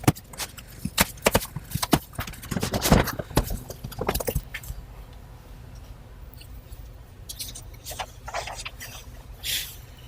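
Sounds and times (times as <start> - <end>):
hard objects knocking and clicking: 0.0 - 4.8.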